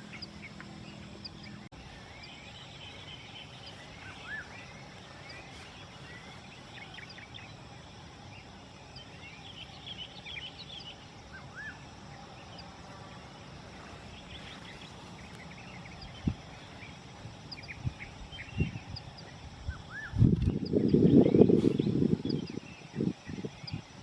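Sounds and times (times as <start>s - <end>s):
small birds chirping: 0.0s - 24.0s
wind gust noise: 11.0s - 24.0s
wind buffeting microphone: 12.1s - 24.0s.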